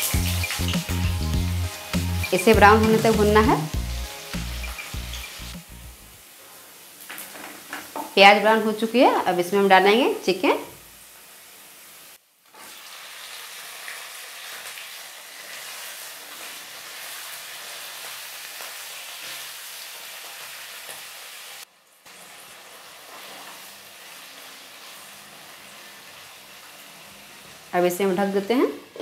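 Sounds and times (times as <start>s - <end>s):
chicken sizzling in oil: 0.0s - 29.0s.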